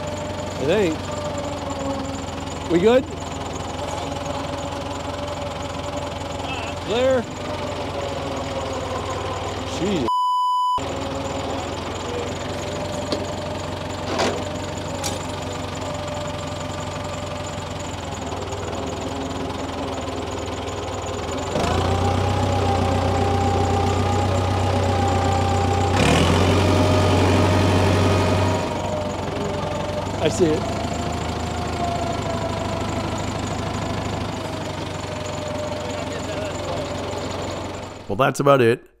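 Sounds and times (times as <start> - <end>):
steady whine: 0.0 - 10.1
tractor engine knocking: 0.0 - 10.1, 10.8 - 38.2.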